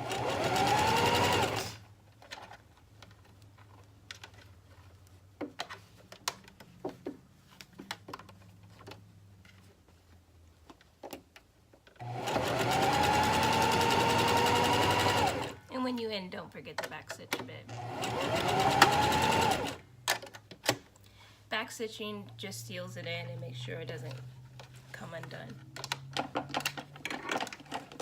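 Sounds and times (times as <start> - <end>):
sewing machine running: 0.0 - 1.8, 12.0 - 15.6, 17.7 - 19.8.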